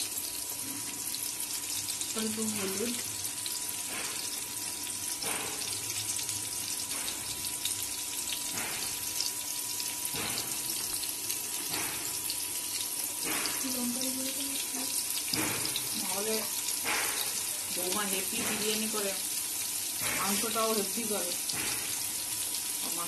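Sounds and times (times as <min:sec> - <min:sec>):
vegetables frying in oil: 0:00.0 - 0:23.0.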